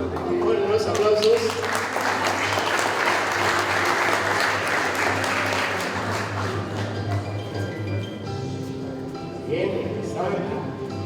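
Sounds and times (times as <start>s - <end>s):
audience applauding: 0.1s - 7.5s.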